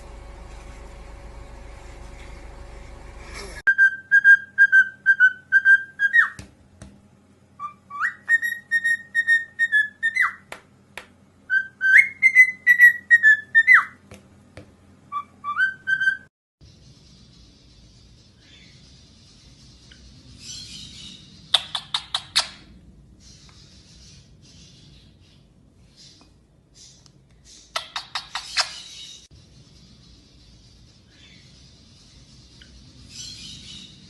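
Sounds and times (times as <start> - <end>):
steady hum: 0.0 - 3.7.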